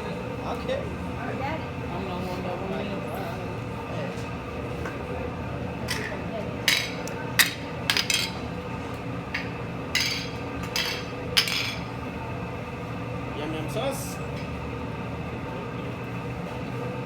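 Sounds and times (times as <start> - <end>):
steady background hum: 0.0 - 17.0
metal utensils clanging on griddle: 5.9 - 8.4, 9.4 - 11.9.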